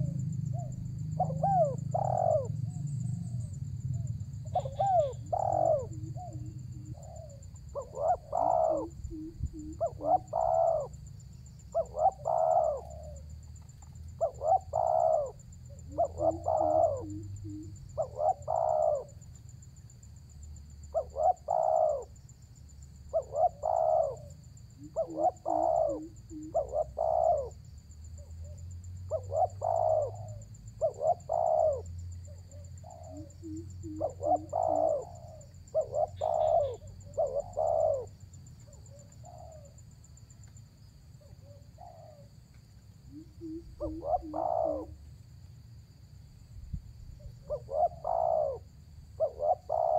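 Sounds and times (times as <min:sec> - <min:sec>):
dove cooing: 0:00.0 - 0:19.2, 0:20.9 - 0:22.3, 0:23.0 - 0:39.8, 0:41.2 - 0:42.3, 0:43.0 - 0:45.1, 0:47.1 - 0:49.9.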